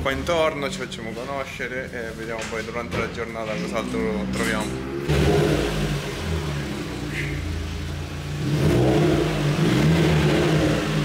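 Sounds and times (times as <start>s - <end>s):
car engine revving: 2.6s - 11.0s.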